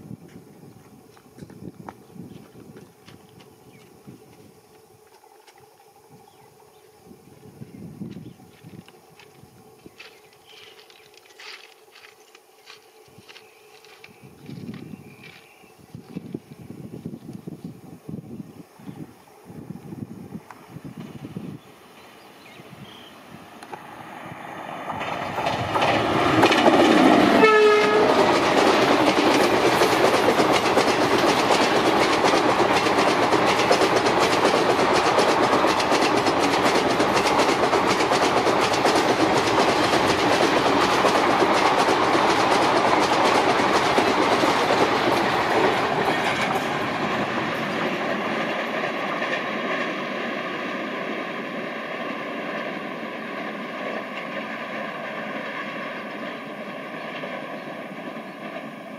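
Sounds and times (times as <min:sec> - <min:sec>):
train wheels clattering on rails: 0:08.0 - 0:16.5, 0:24.6 - 0:58.9
train horn: 0:27.3 - 0:28.3.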